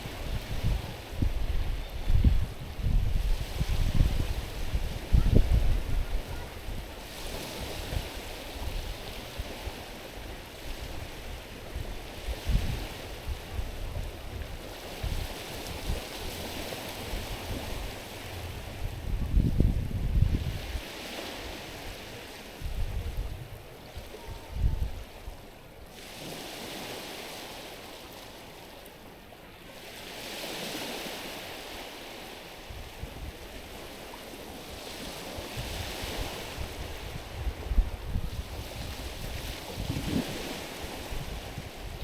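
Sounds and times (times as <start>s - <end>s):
wind buffeting microphone: 0.0s - 25.4s, 34.7s - 42.0s
waves washing onto stony shore: 0.0s - 42.0s.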